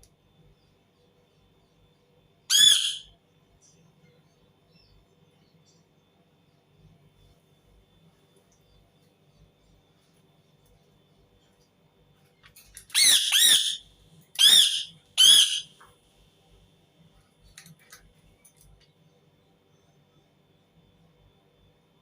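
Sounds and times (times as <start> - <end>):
parakeet screeching: 2.5 - 3.1, 12.9 - 13.8, 14.4 - 15.7.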